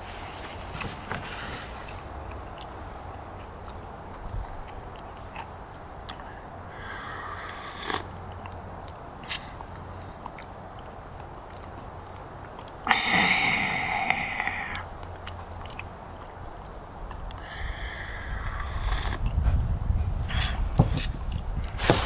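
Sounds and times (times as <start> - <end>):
person chewing crunchy food: 14.8 - 17.3.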